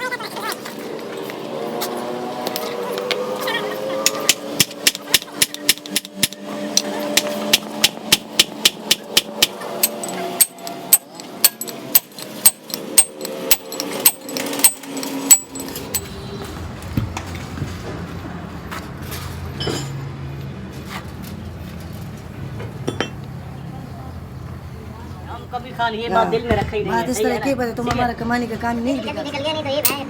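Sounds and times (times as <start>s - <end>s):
hammer striking metal: 4.0s - 16.1s.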